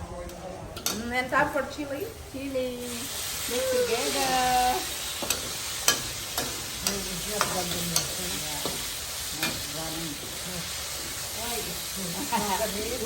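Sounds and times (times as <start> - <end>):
food sizzling in a pan: 0.8 - 13.0
utensil clicking against pan: 5.2 - 9.6.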